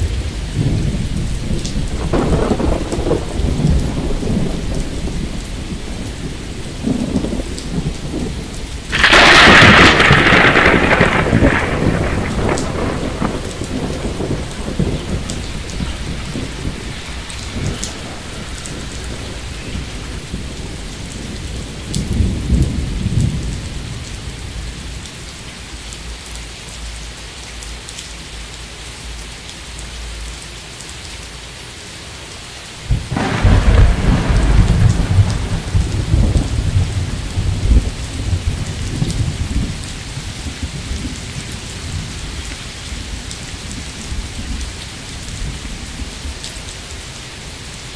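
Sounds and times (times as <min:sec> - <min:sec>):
thunder rumbling: 0:00.0 - 0:25.5, 0:32.8 - 0:47.7
steady rain: 0:00.0 - 0:47.9
loud thunderclap: 0:00.1 - 0:24.9, 0:32.9 - 0:41.2.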